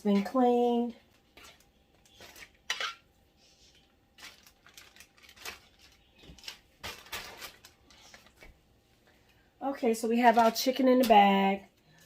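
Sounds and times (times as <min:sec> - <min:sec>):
plastic bag rustling: 0:00.2 - 0:08.6, 0:10.1 - 0:11.1.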